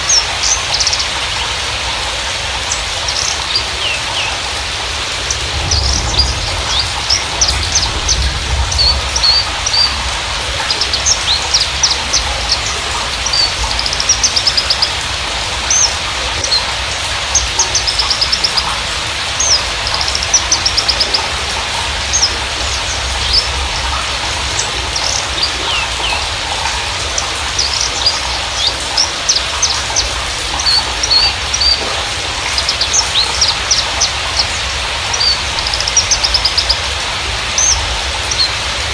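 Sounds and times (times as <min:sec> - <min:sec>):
bushlark singing: 0:00.0 - 0:38.9.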